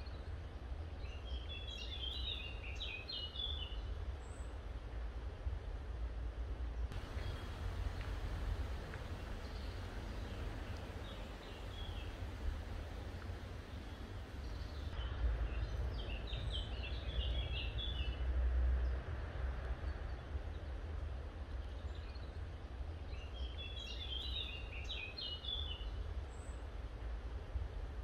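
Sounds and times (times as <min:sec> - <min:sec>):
low rumble: 0:06.9 - 0:15.3
small bird chirping: 0:07.0 - 0:15.0.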